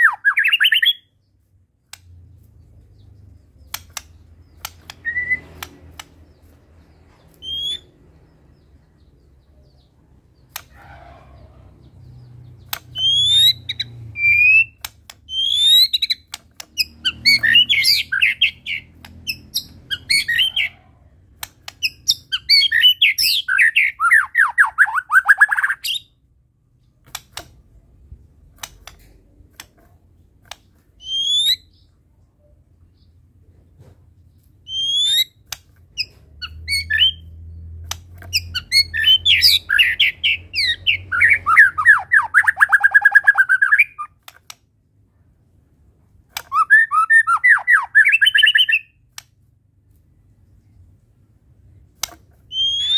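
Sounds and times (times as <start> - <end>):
songbird whistled singing: 0.0 - 1.2, 3.0 - 5.7, 6.4 - 8.0, 8.6 - 20.8, 21.8 - 26.2, 31.0 - 31.9, 34.6 - 35.4, 36.0 - 44.2, 46.4 - 49.0, 52.5 - 52.9
sharp clicks: 1.8 - 8.3, 10.4 - 10.8, 12.0 - 20.7, 21.3 - 23.7, 27.0 - 31.1, 35.4 - 44.7, 46.2 - 46.8, 49.0 - 49.5, 51.8 - 52.9.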